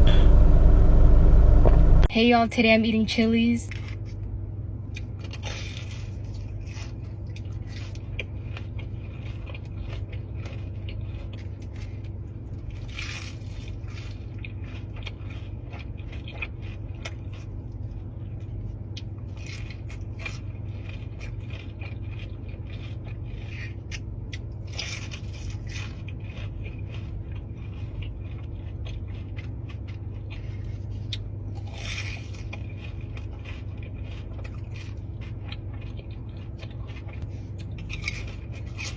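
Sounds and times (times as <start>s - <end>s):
low hum: 0.0s - 29.4s
chewing and crunching: 3.7s - 38.9s.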